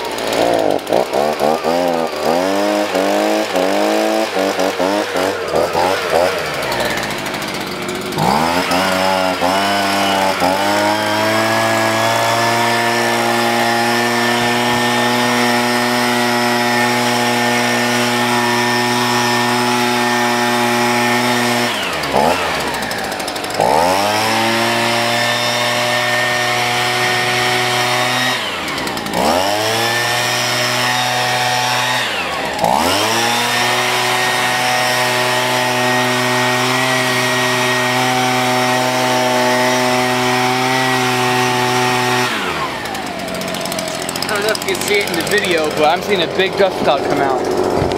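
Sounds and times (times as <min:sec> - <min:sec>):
leaf blower running: 0:00.0 - 0:47.9.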